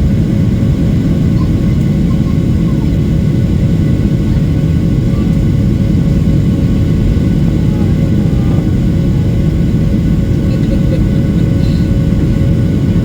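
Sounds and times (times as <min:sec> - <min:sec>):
jet engine cabin rumble: 0:00.0 - 0:13.0.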